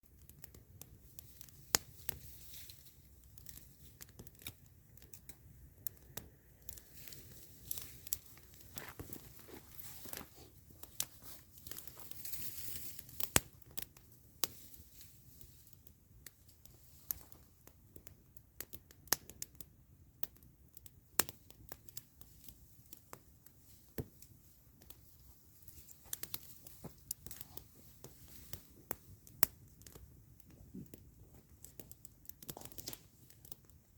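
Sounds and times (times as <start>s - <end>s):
campfire crackling and popping: 0.0s - 33.9s
fire hissing: 0.1s - 19.5s, 20.9s - 33.9s.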